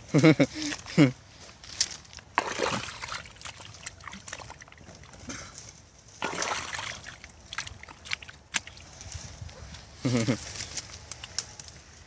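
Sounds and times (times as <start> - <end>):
seawater sloshing and splashing: 2.4 - 5.1, 6.2 - 8.9.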